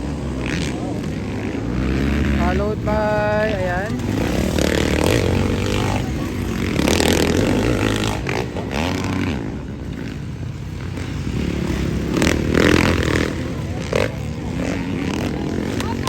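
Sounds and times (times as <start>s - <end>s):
motorcycle engines revving: 0.0s - 16.0s.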